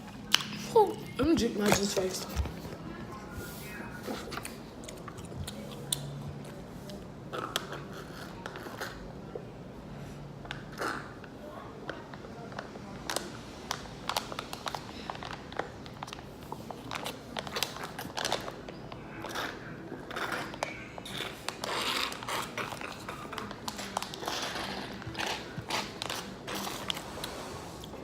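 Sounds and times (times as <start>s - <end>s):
chewing and mouth noises: 4.2s - 9.0s.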